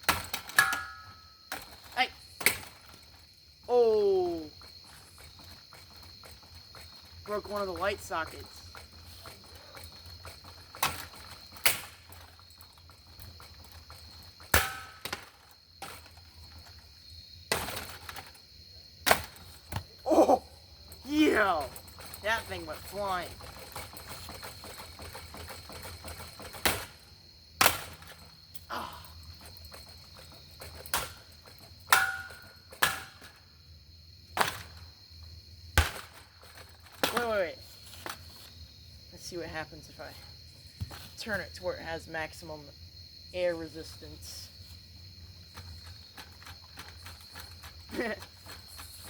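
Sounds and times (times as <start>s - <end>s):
ceiling fan being smashed: 0.0s - 3.0s, 8.4s - 16.7s, 17.5s - 18.4s, 19.0s - 19.9s, 23.4s - 28.3s, 29.4s - 33.5s, 34.3s - 34.8s, 35.7s - 38.2s.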